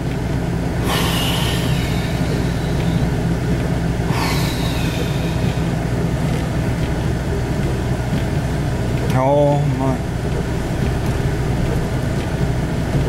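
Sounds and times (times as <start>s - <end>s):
vehicle engine and road drone: 0.0s - 13.0s.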